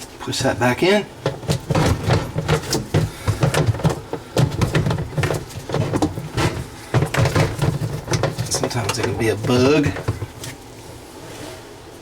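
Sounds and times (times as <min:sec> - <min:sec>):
steady low hum: 0:00.0 - 0:12.0
plastic parts clicking and clattering: 0:01.2 - 0:10.6.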